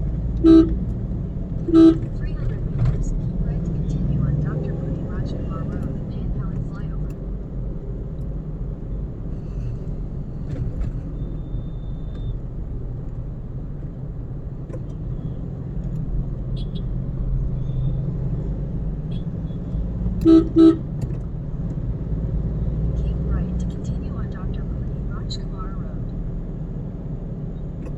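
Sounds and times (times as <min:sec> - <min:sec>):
car engine and tyres rumble: 0:00.0 - 0:27.9.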